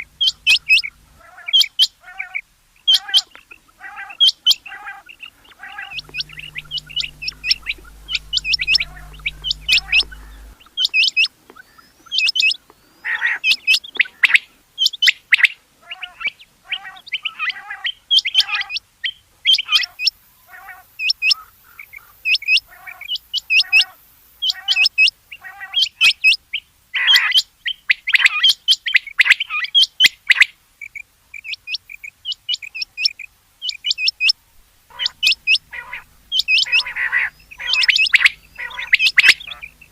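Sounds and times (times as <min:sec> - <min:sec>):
lower softer bird notes: 0:00.0 - 0:01.6, 0:05.5 - 0:10.7, 0:34.9 - 0:39.9
quail calling high notes: 0:00.0 - 0:10.6, 0:33.7 - 0:39.9.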